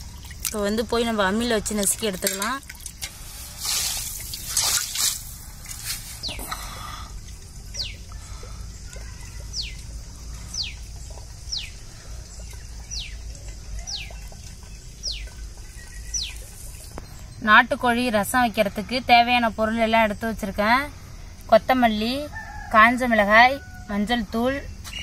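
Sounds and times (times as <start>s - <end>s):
water splashes: 0.0s - 18.9s.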